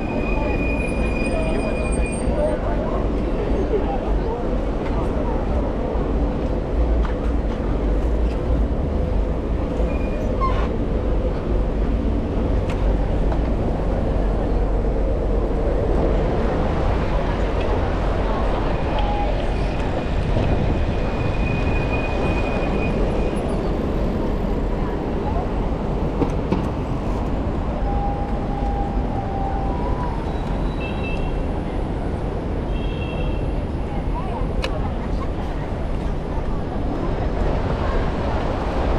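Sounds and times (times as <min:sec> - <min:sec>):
street traffic: 0:00.0 - 0:38.9
wind rumble on camera: 0:00.0 - 0:38.9
brief high squeak: 0:09.9 - 0:10.7.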